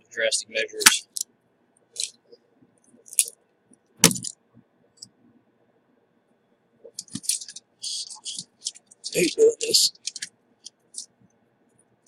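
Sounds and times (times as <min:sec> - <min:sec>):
sharp metallic clicks and knocks: 0:06.9 - 0:09.2.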